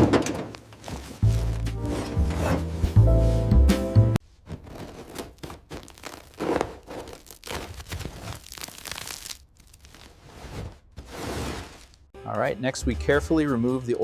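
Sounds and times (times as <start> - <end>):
crinkling tearing and scraping: 0.0 - 2.8, 4.4 - 12.1.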